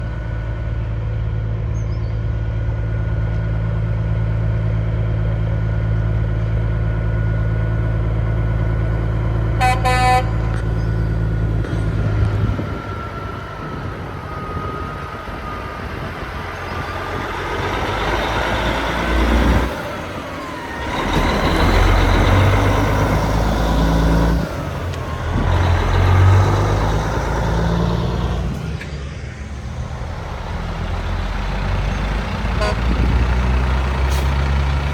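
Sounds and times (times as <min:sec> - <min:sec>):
truck engine idling: 0:00.0 - 0:34.9
trucks revving pulling past: 0:00.0 - 0:34.9
truck horn blast: 0:09.6 - 0:10.7, 0:32.4 - 0:33.5.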